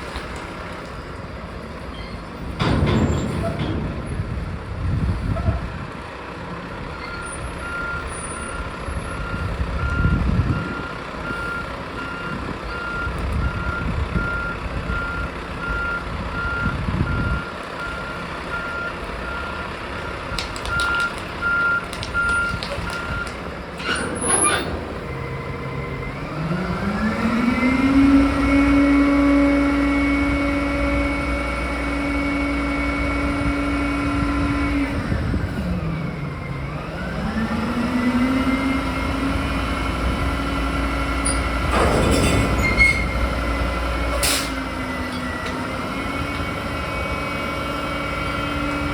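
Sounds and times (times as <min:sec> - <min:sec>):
truck reverse alarm beeping: 0:06.6 - 0:48.9
diesel engine idling: 0:24.4 - 0:41.7
engine revving: 0:24.8 - 0:35.1.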